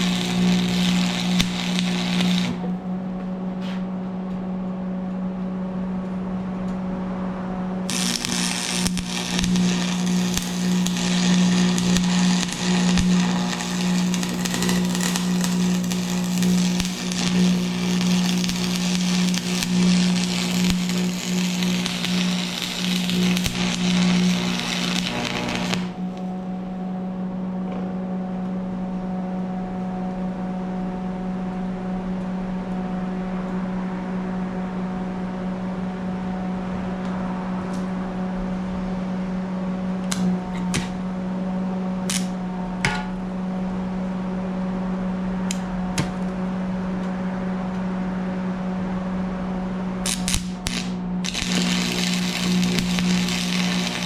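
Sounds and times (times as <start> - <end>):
arc welding crackle: 0.0 - 2.8, 7.8 - 26.4, 40.1 - 41.0, 42.0 - 42.5, 50.0 - 54.0
steady low hum: 0.0 - 54.0.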